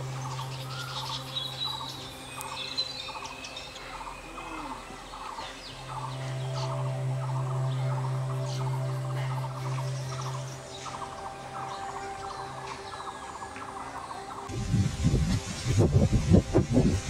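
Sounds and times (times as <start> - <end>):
birds chattering and chirping: 0.0 - 16.0
low steady hum: 0.0 - 17.0.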